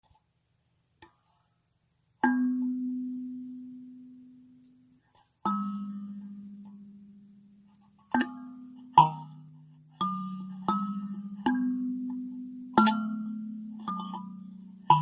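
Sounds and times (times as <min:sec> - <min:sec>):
kalimba notes: 0:05.5 - 0:07.2, 0:08.2 - 0:15.0.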